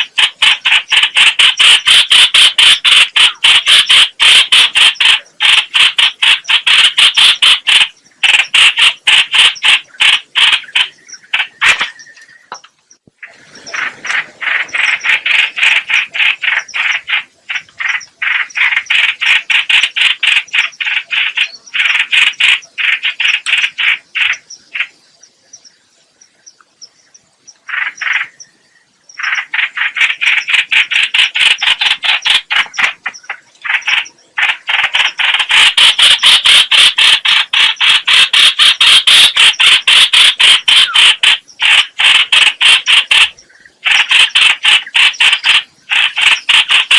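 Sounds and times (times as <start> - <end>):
bird harsh chattering call: 0.0 - 25.0, 27.6 - 28.6, 29.2 - 46.9.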